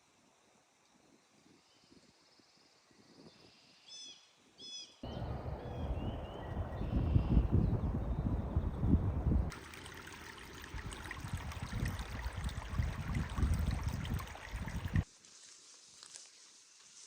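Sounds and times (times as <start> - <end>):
wind rumbling on microphone: 5.0 - 9.6, 10.5 - 15.1
trickling water: 9.5 - 15.1.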